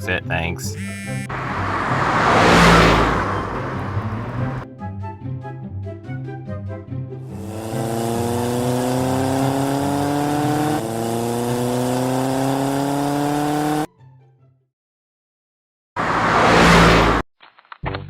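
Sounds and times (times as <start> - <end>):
car engine accelerating: 0.8 - 4.6, 7.3 - 13.9, 16.0 - 17.2
loud rushing burst of noise: 1.3 - 4.6, 16.0 - 17.2.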